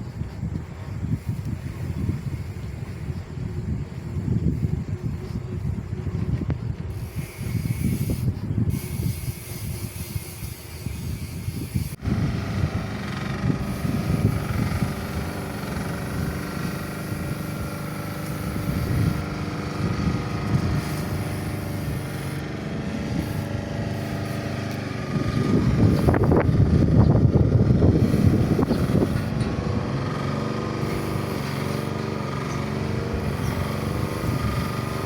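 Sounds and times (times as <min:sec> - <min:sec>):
road and wind rumble: 0:00.0 - 0:35.0
vehicle engine running: 0:11.9 - 0:35.0.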